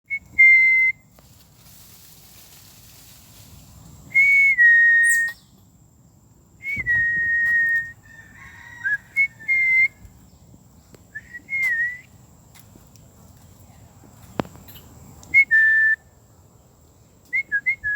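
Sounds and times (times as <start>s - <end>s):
whistled notes: 0.1s - 1.1s, 4.1s - 5.4s, 6.6s - 8.0s, 8.9s - 10.0s, 11.1s - 12.1s, 15.3s - 16.0s, 17.3s - 17.9s.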